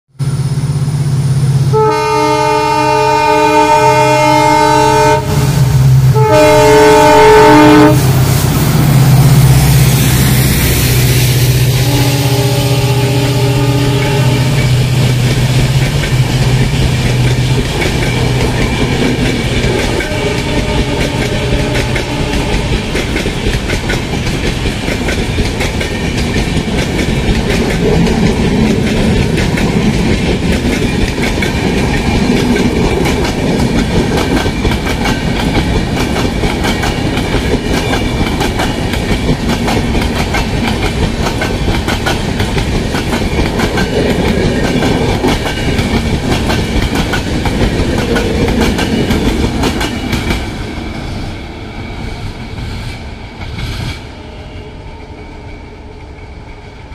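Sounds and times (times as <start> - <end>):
diesel locomotive hum: 0.1 - 56.9
train wheels clattering over joints: 14.6 - 50.5.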